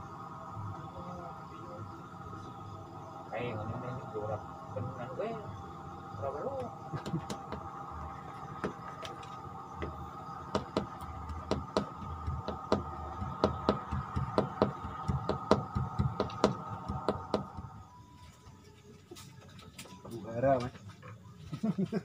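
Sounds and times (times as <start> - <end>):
steady hum: 0.0 - 20.6
sharp irregular knocks: 9.8 - 17.7.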